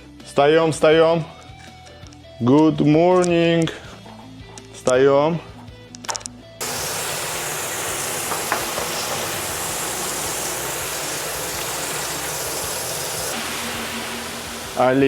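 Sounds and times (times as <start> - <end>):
steady hiss: 6.6 - 15.0.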